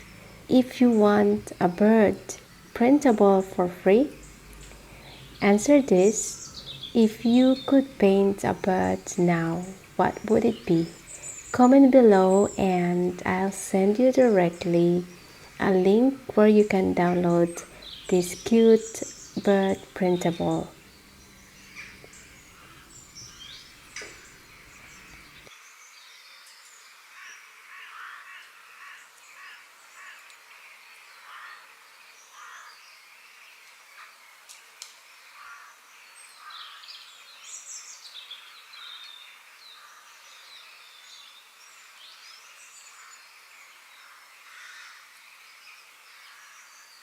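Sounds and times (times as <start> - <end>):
birds chirping and whistling: 0.0 - 25.5.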